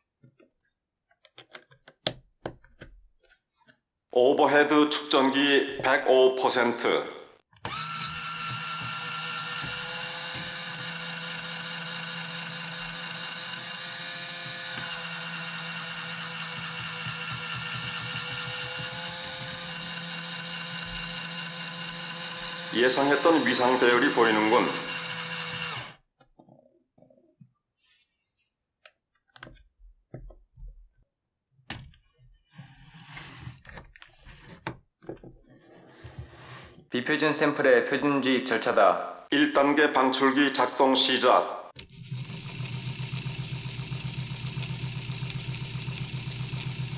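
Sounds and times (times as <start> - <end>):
electric toy motor whining: 7.6 - 26.0, 41.8 - 46.9.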